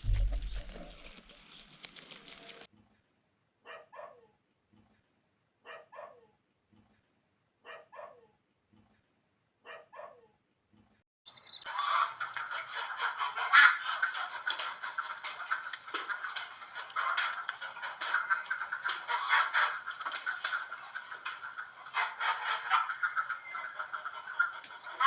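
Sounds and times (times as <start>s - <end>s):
dog barking: 3.6s - 4.4s, 5.6s - 6.3s, 7.6s - 8.3s, 9.6s - 10.3s.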